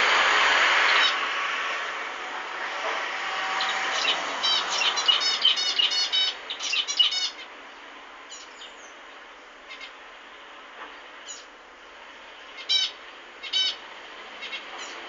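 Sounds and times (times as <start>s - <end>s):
finches singing: 3.6s - 7.5s, 8.3s - 9.0s.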